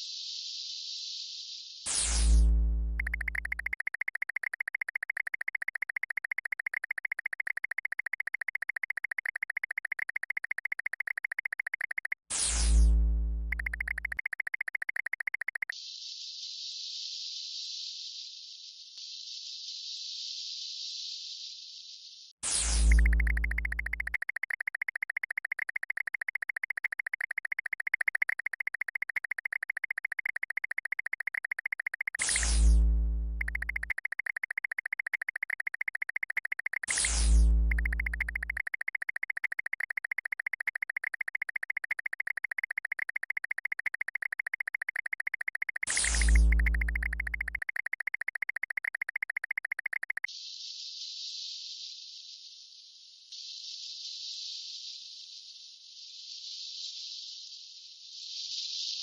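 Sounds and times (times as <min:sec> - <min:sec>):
pulsing electronic buzz: 0:22.7 - 0:44.3, 0:44.9 - 0:48.0.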